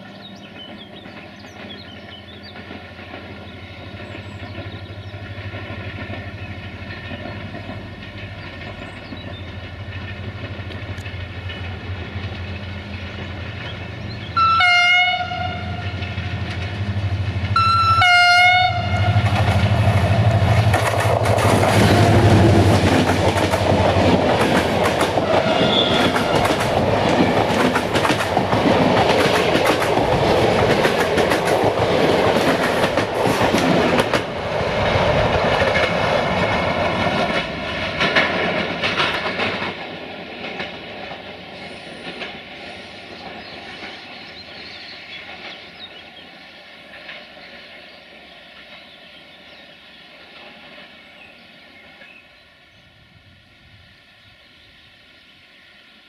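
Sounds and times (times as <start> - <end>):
locomotive engine droning: 0.0 - 46.3
train wheels clattering over rail joints: 0.5 - 14.4, 19.2 - 46.0
locomotive horn chords: 14.4 - 16.0, 17.6 - 19.4, 25.2 - 26.4.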